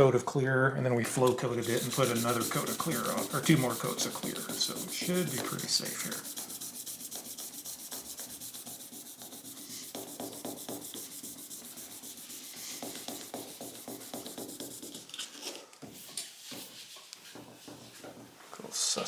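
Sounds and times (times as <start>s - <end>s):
sandpaper sanding by hand: 1.6s - 15.1s.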